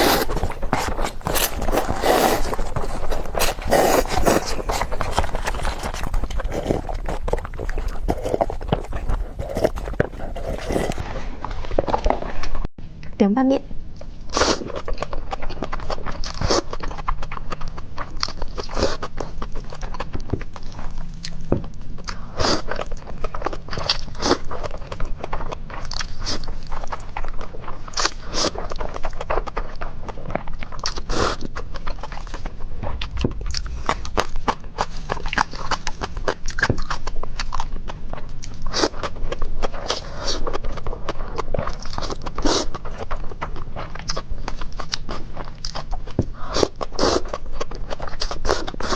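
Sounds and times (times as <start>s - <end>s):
mouth clicks and smacks: 0.0s - 11.0s
wet chewing and biting: 0.0s - 11.0s, 14.4s - 48.9s.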